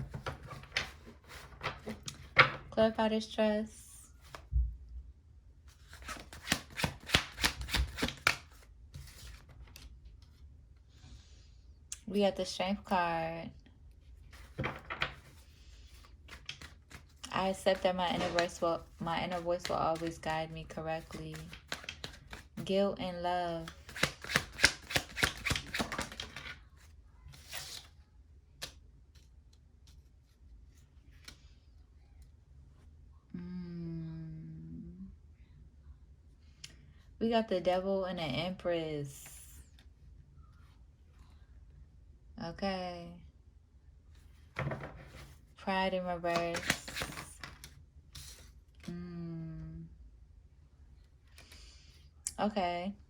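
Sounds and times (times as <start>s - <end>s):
cards being shuffled: 0.0s - 2.6s, 5.8s - 10.3s, 14.3s - 22.7s, 23.5s - 26.6s, 27.3s - 31.4s, 46.2s - 48.9s
cards tapped down: 6.0s - 8.6s, 23.7s - 26.5s
card sliding: 46.3s - 47.4s.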